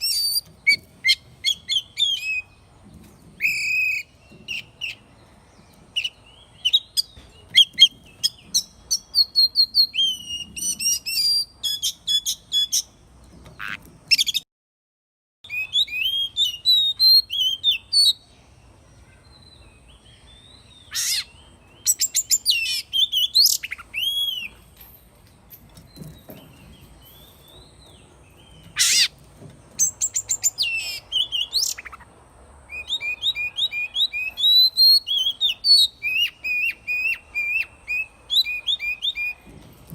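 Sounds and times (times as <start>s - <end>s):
bird singing whistled phrases: 3.4s - 5.0s, 8.9s - 12.9s, 15.5s - 18.2s, 29.8s - 32.0s, 32.7s - 39.4s.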